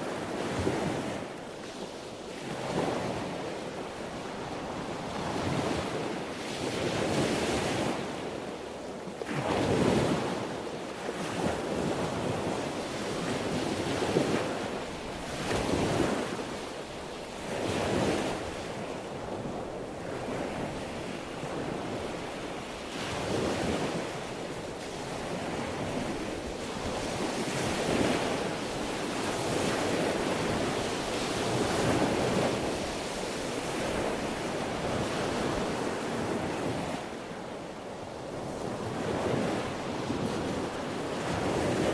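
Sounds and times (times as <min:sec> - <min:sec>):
wind noise on microphone: 0:00.0 - 0:41.9
ocean waves breaking: 0:09.2 - 0:41.9.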